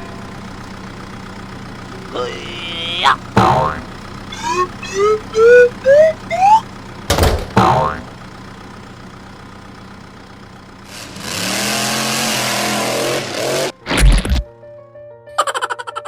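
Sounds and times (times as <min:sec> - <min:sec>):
cartoon engine humming and revving: 0:00.0 - 0:14.5, 0:15.4 - 0:16.0
heavy thump: 0:07.1 - 0:07.8.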